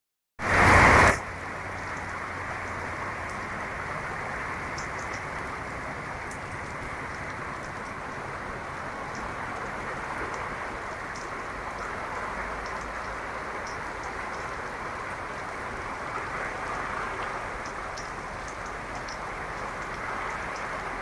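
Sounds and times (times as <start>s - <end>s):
heavy rain hissing: 0.4s - 2.5s
drip ticks: 1.6s - 21.0s.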